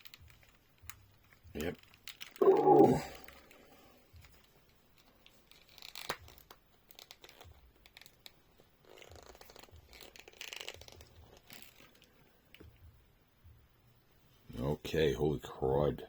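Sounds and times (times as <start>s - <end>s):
plastic toy clicking and scraping: 0.0s - 12.6s.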